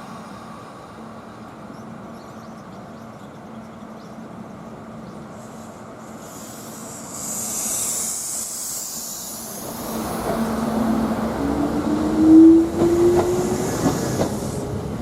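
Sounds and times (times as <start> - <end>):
high hiss from rails: 5.1 - 11.5, 13.4 - 15.0.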